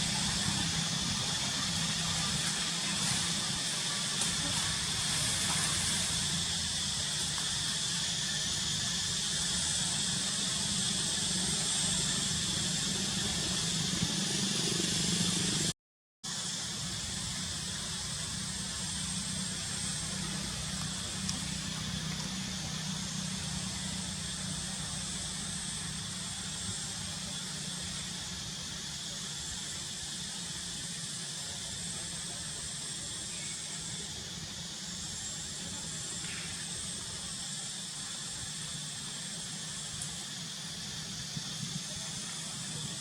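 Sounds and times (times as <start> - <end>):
outdoor background hiss: 0.0 - 15.7, 16.3 - 43.0.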